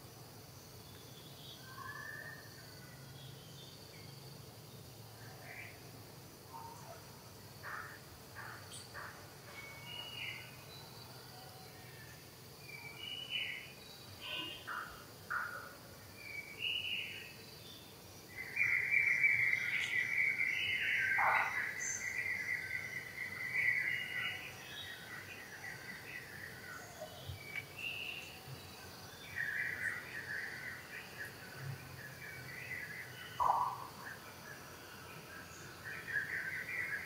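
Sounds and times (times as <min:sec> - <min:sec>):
birds chirping: 0:18.4 - 0:31.4, 0:32.2 - 0:34.3.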